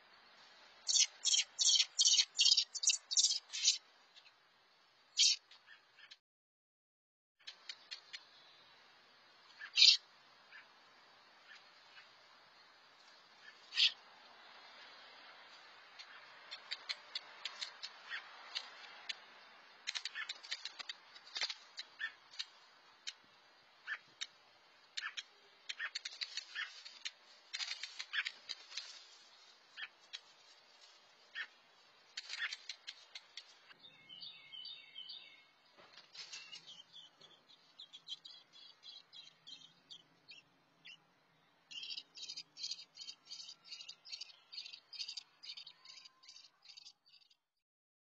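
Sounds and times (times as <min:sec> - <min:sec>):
bird alarm chips: 0:00.8 - 0:03.8, 0:05.2 - 0:06.2, 0:09.5 - 0:10.7, 0:13.4 - 0:14.0, 0:16.0 - 0:23.2, 0:23.8 - 0:47.4.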